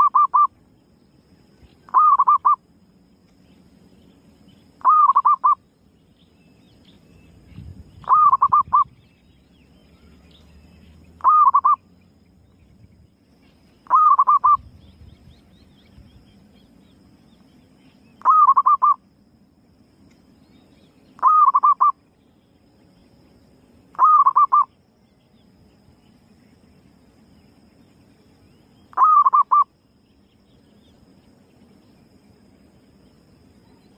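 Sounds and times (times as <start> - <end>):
dove cooing: 0.0 - 0.5, 1.9 - 2.6, 4.8 - 5.6, 8.0 - 8.9, 11.2 - 11.8, 13.9 - 14.7, 18.2 - 19.0, 21.2 - 22.0, 24.0 - 24.7, 28.9 - 29.7.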